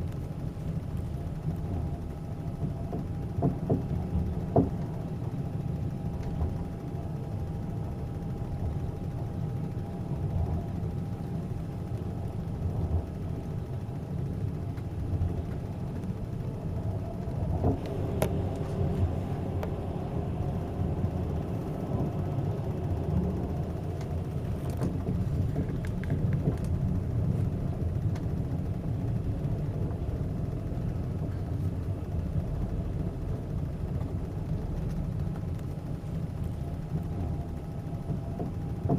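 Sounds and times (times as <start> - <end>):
passenger train rumbling: 0.0 - 38.9
train clatter: 0.9 - 5.0, 14.7 - 38.9.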